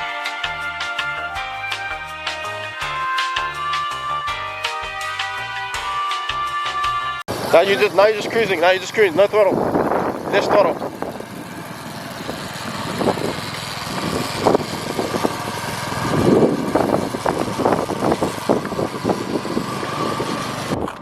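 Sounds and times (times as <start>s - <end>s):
motorbike engine running: 7.3s - 21.0s.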